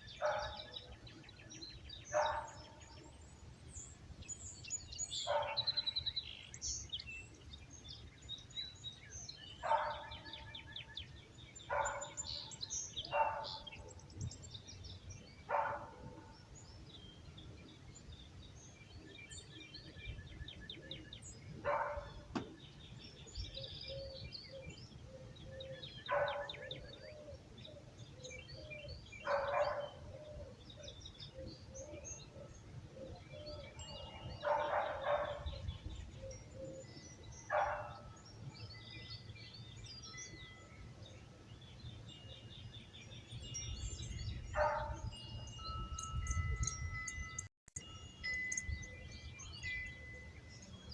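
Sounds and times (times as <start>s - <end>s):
birds chirping and trilling: 0.0s - 50.9s
dog barking: 0.2s - 0.7s, 2.1s - 2.7s, 5.3s - 5.8s, 9.6s - 10.4s, 11.7s - 12.2s, 13.1s - 13.8s, 15.5s - 16.3s, 21.6s - 22.2s, 26.1s - 26.7s, 29.2s - 30.0s, 34.4s - 35.5s, 37.5s - 38.0s, 44.6s - 45.0s.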